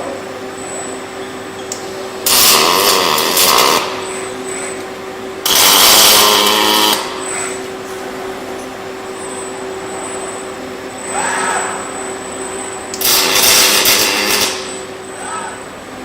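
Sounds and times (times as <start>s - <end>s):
steady welding cell hum: 0.0s - 16.0s
arc welding buzzing bursts: 1.8s - 7.6s, 11.9s - 15.2s.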